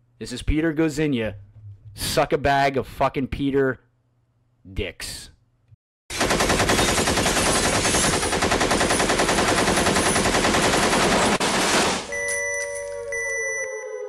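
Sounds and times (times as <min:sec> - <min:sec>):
machine-gun fire: 0:06.1 - 0:12.1.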